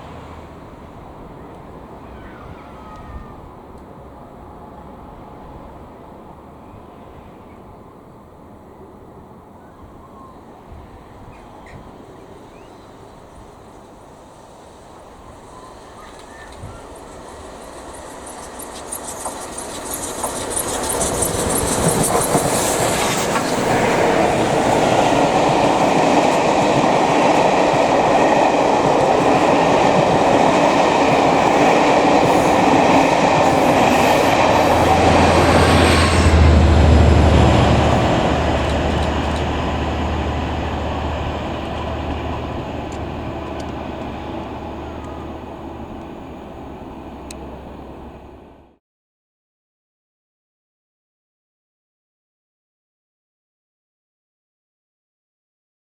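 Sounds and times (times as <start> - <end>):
train wheels clattering on rails: 14.7 - 48.3.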